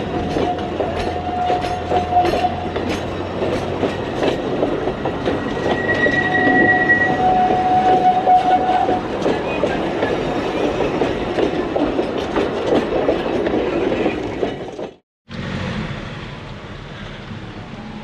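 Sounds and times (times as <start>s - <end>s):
train wheels clacking: 0.0s - 15.0s
high wheel squeal: 0.2s - 2.8s, 5.2s - 11.0s.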